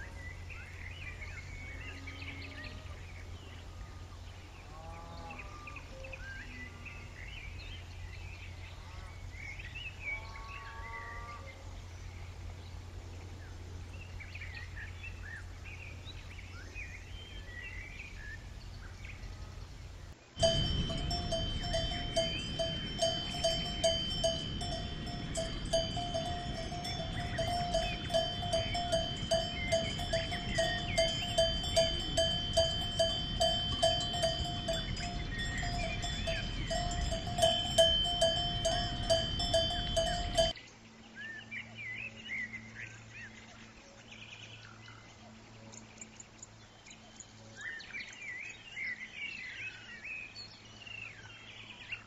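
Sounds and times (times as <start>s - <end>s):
low steady hum: 0.0s - 41.1s
livestock bleating: 10.2s - 11.5s
cowbell ringing: 20.4s - 40.6s.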